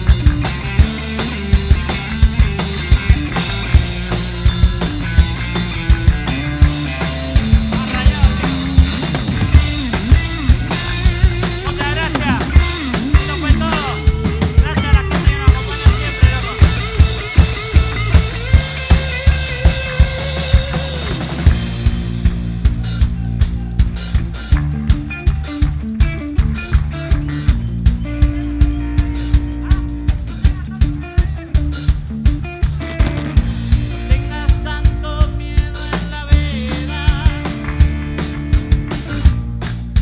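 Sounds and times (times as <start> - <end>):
wavering lead line: 0.0 - 26.3
drum kit beat: 0.0 - 40.0.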